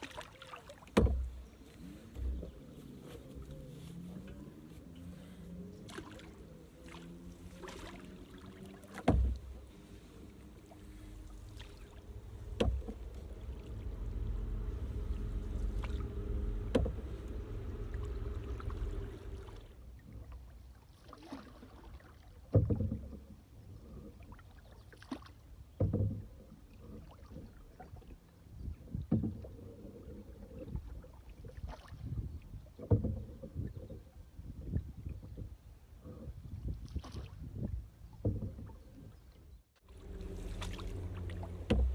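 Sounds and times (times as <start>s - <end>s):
water swirling: 0.0s - 22.5s, 39.8s - 41.9s
paddle knocking on canoe: 0.8s - 2.6s, 8.8s - 19.6s, 22.5s - 23.3s, 25.7s - 26.3s, 29.0s - 29.6s, 32.8s - 34.0s, 38.2s - 38.9s, 39.9s - 41.9s
low rumble: 1.2s - 20.1s, 39.8s - 41.9s.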